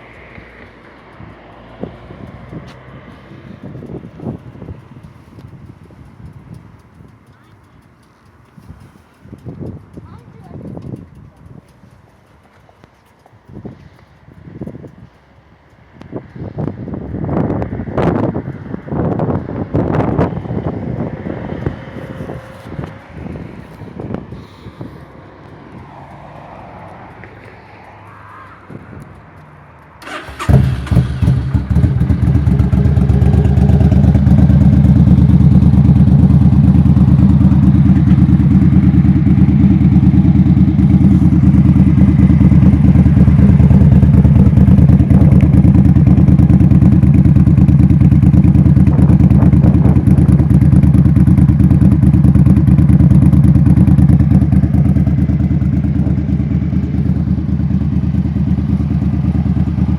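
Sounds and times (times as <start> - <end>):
motorcycle engine idling: 1.2 - 17.2, 30.0 - 59.9
motorcycle engine starting: 18.9 - 25.1, 29.8 - 59.9.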